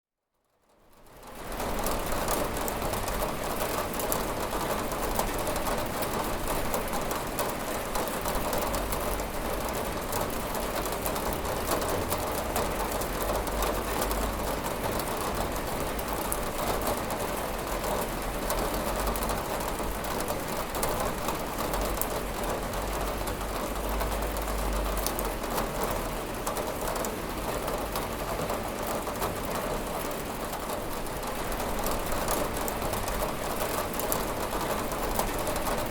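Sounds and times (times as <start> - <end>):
rain pattering on a window: 0.4 - 35.9.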